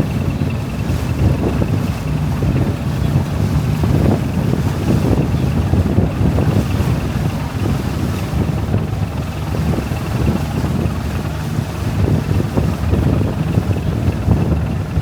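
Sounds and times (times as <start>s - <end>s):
boat running noise: 0.0s - 15.0s
wind buffeting microphone: 0.0s - 15.0s.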